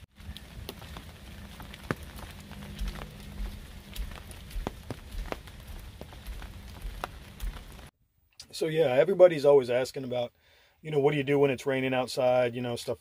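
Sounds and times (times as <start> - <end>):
raindrops tapping on roof: 0.0 - 7.9
low steady hum: 0.0 - 9.2.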